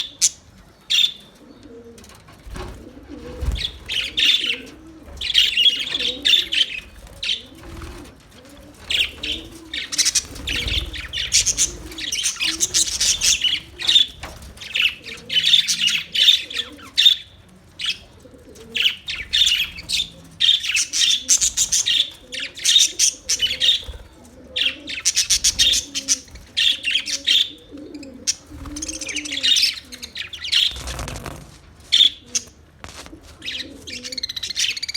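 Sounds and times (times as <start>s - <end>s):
soft cooing calls: 0.0s - 31.3s, 31.9s - 34.9s
parrots chattering and chirping: 3.4s - 8.2s, 8.8s - 18.1s, 18.8s - 23.9s, 24.6s - 32.6s.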